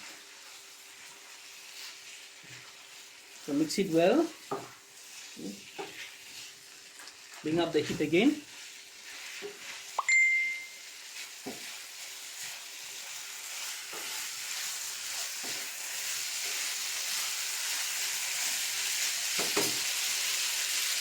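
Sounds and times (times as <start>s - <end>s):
food sizzling in a frying pan: 0.0s - 21.0s
short beep: 10.0s - 10.8s
utensil knocking in pan: 19.4s - 19.8s.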